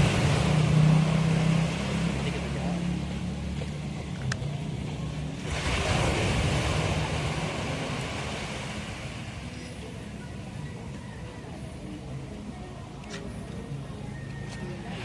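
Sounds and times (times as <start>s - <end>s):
ocean waves breaking on beach: 0.0s - 3.8s, 4.5s - 11.0s
low engine hum: 0.0s - 15.0s.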